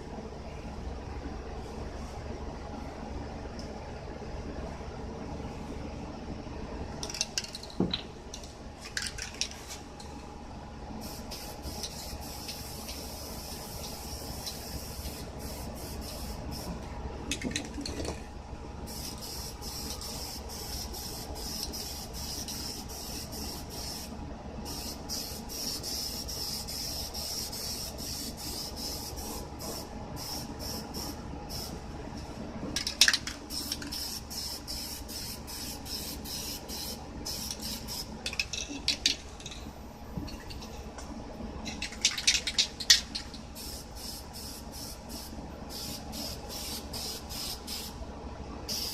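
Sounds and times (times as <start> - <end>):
spray paint can hissing: 11.0 - 16.7, 18.9 - 24.1, 33.5 - 38.1, 43.6 - 47.9
spray can rattling clicks: 32.8 - 34.1, 41.7 - 43.4.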